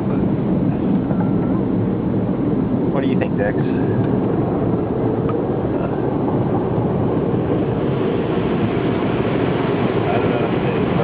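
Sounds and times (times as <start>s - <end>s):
car wash rushing rumble: 0.0s - 11.0s.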